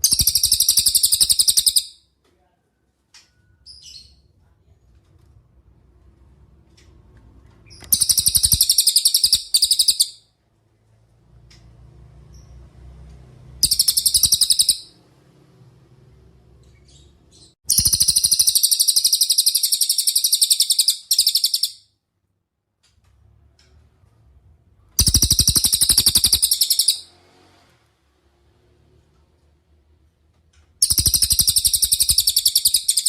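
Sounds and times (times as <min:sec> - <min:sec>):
songbird trilling: 0:07.8 - 0:10.2, 0:13.6 - 0:14.9, 0:25.0 - 0:27.1, 0:30.8 - 0:33.0.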